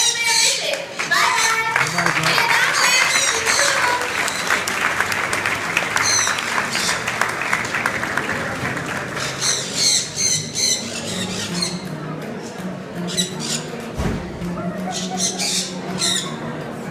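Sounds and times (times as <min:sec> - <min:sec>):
high calls from crowd: 0:00.0 - 0:16.9
crowd applauding: 0:00.5 - 0:10.3.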